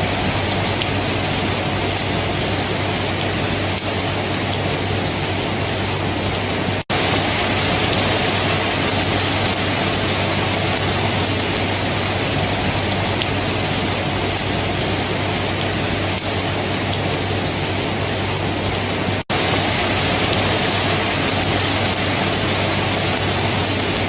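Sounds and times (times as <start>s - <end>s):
dense rainfall: 0.0s - 24.0s.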